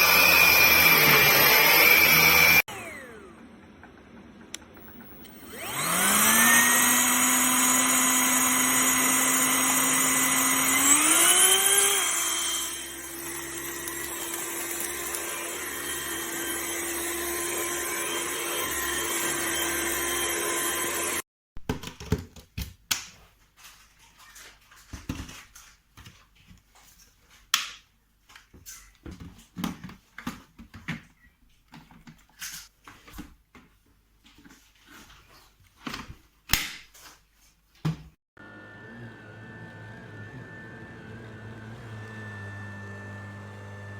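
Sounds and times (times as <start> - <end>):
vacuum cleaner motor whine: 0.0 - 21.2, 38.4 - 43.9.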